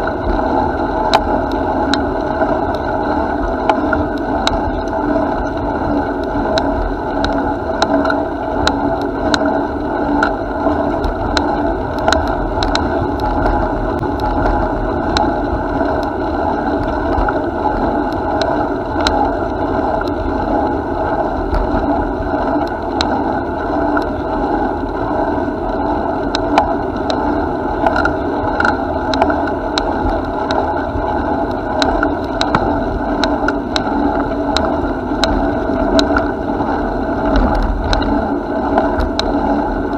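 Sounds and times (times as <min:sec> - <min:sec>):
bicycle tyres rolling: 0:00.0 - 0:25.8
bicycle clicks and rattles: 0:27.8 - 0:29.9.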